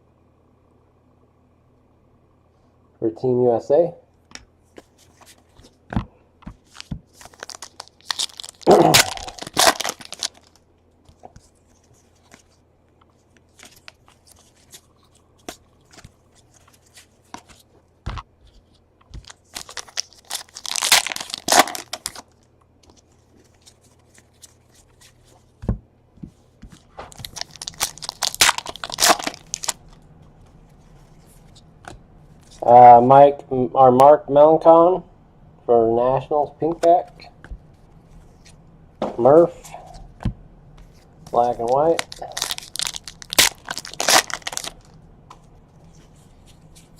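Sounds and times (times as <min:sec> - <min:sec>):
card wrappers tearing and crinkling: 0:06.6 - 0:10.6, 0:13.5 - 0:17.6, 0:19.2 - 0:25.3, 0:26.8 - 0:30.0, 0:40.8 - 0:45.0.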